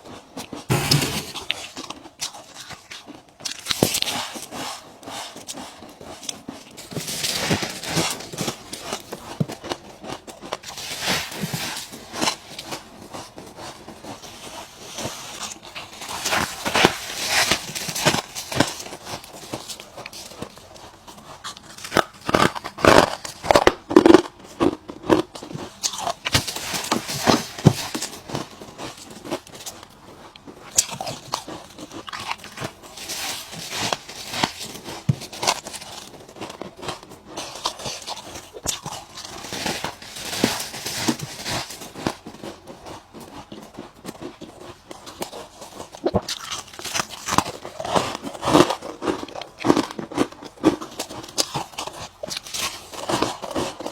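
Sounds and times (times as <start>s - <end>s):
person crunching ice: 0.5s - 30.0s, 30.6s - 53.9s.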